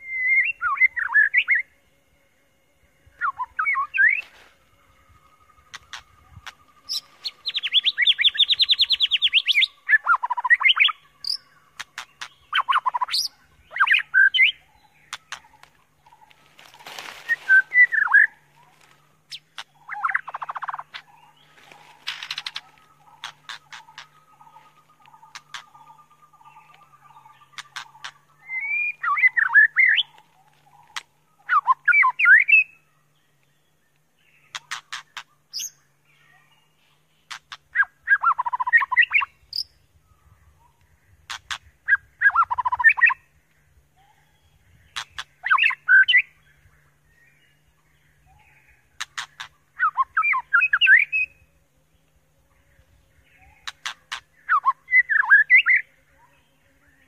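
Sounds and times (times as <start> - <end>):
bird singing whistled phrases: 0.0 - 1.6, 5.9 - 11.5, 28.4 - 30.1, 31.4 - 32.8, 49.8 - 51.4
sharp bird clicks: 5.7 - 16.3, 19.3 - 21.1, 22.0 - 24.2, 25.0 - 26.0, 26.6 - 32.6, 33.4 - 35.8, 37.2 - 39.7, 40.8 - 41.7, 44.9 - 46.2, 48.9 - 51.0, 53.6 - 55.3.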